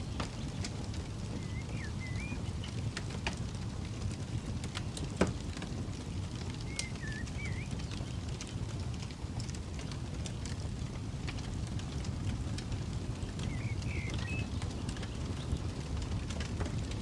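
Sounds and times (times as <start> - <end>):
campfire crackling and popping: 0.0 - 17.0
bird whistling: 1.4 - 2.4, 6.7 - 7.8, 13.5 - 14.5.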